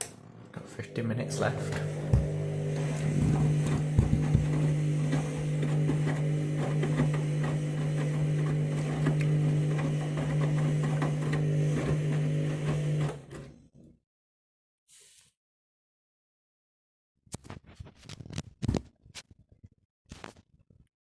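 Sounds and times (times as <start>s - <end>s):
washing machine motor hum: 0.2s - 13.5s
drum and laundry knocking: 1.9s - 8.9s.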